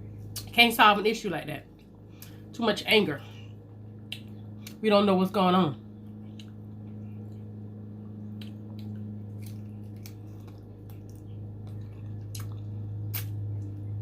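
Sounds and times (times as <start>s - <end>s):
low hum: 0.0s - 14.0s
person chewing wetly: 6.1s - 13.8s.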